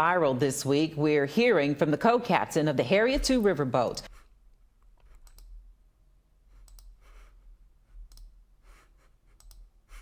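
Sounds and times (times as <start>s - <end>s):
faint clicks: 6.6s - 6.9s, 9.4s - 9.7s.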